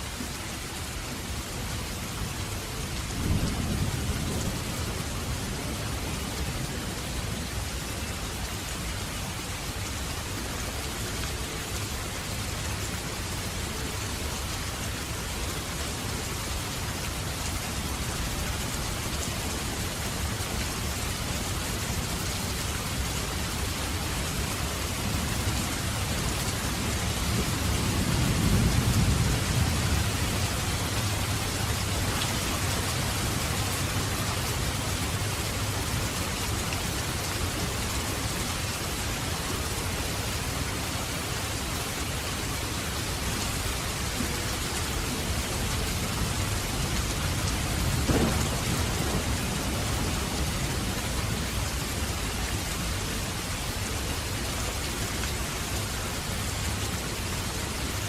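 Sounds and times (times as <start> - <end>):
heavy rain falling: 0.0 - 58.0
thunder rolling: 47.8 - 51.4.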